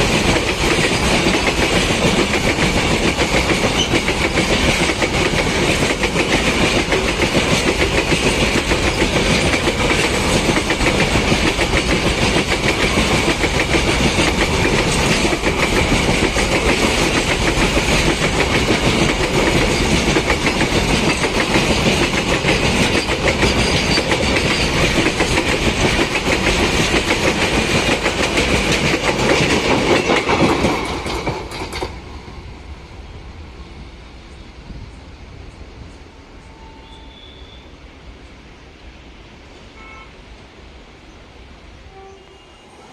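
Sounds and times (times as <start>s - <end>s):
train wheels clattering: 0.0s - 32.3s.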